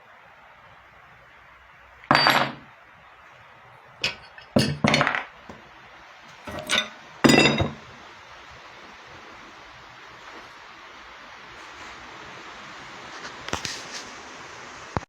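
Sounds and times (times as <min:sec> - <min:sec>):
metallic clanks: 0:04.0 - 0:05.3, 0:06.3 - 0:07.9.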